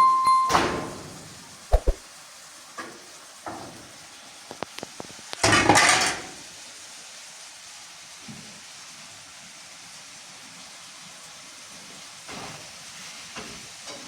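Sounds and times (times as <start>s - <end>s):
short loud rush of noise: 1.7s - 2.0s
pots and dishes clattering: 5.4s - 6.4s, 13.3s - 14.0s.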